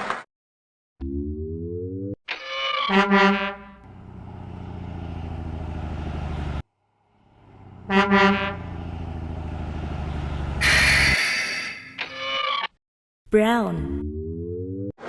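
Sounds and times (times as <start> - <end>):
truck horn honk: 2.9 - 3.9, 7.5 - 9.0, 10.3 - 11.5
truck engine rumble: 3.6 - 11.2
loud hiss: 10.6 - 11.7.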